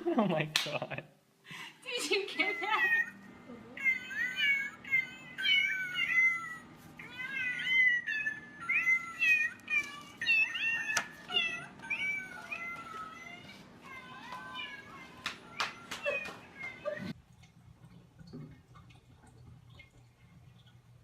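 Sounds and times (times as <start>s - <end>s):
cat meowing: 3.8s - 17.1s.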